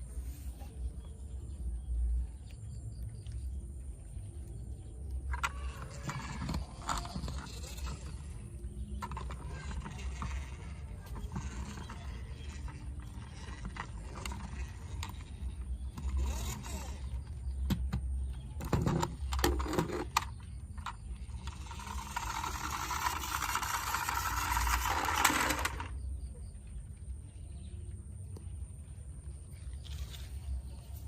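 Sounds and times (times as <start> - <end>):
toy trucks clicking and knocking: 4.9 - 26.3.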